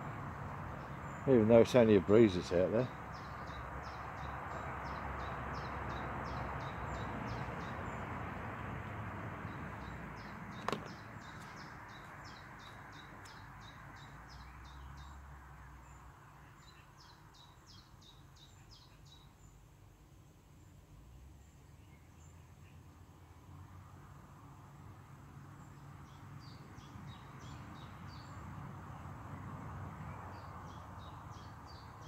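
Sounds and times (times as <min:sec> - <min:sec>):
small bird chirping: 0:09.5 - 0:15.2, 0:15.9 - 0:19.7.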